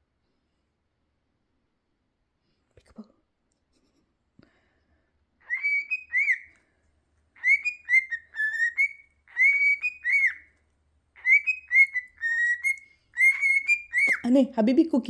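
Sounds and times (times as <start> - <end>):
cockatiel whistling: 5.4 - 6.5, 7.4 - 10.5, 11.2 - 14.2.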